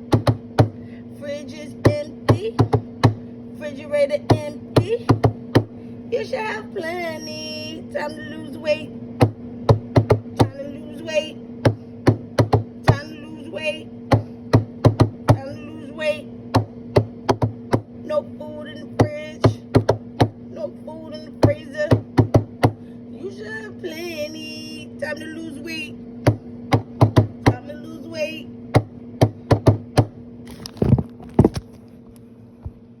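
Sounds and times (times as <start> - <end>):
steady low hum: 0.0 - 33.0
sharp knocks: 0.1 - 0.8, 9.2 - 10.5, 11.6 - 12.7, 14.1 - 15.4, 16.5 - 17.9, 19.7 - 20.4, 21.4 - 22.8, 26.2 - 27.6, 28.7 - 30.1.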